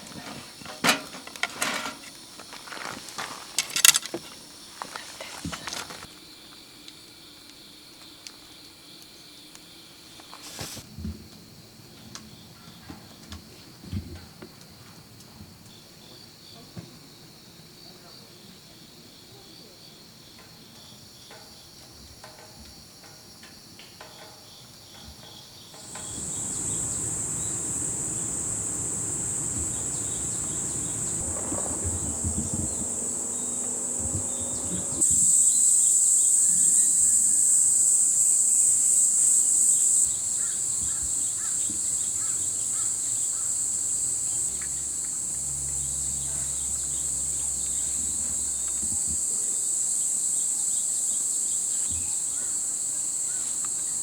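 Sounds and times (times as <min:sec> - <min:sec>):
insects chirring: 0:00.0 - 0:10.8, 0:23.0 - 0:54.0.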